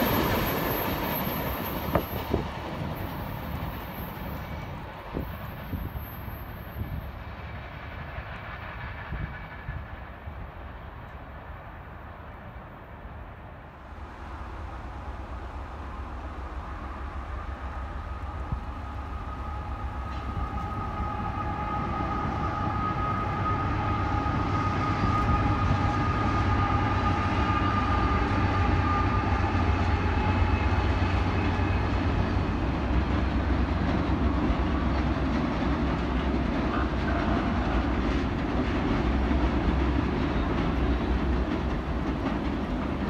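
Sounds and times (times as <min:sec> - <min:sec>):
train cars clattering over bridge: 0:00.0 - 0:12.0, 0:13.8 - 0:43.0
locomotive low rumble: 0:13.6 - 0:43.0.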